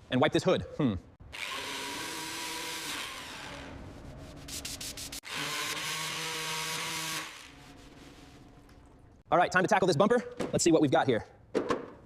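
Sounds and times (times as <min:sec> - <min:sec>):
power tool whirring: 0:01.3 - 0:03.8, 0:05.2 - 0:07.6.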